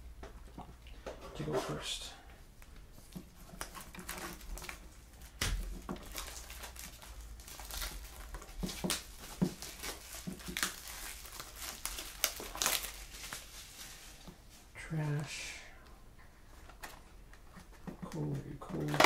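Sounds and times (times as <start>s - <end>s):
plastic wrapping crinkling and tearing: 3.0s - 14.6s, 16.6s - 19.0s
box rustling and knocking: 8.4s - 10.6s.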